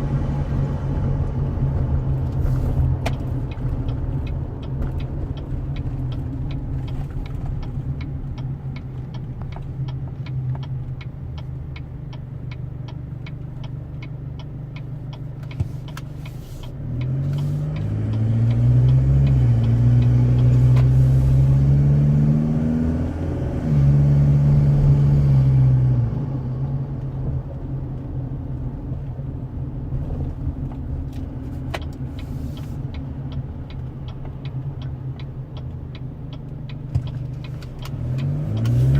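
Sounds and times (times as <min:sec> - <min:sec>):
regular ticking: 0:03.1 - 0:21.0, 0:31.8 - 0:38.9
diesel engine droning: 0:37.2 - 0:38.9.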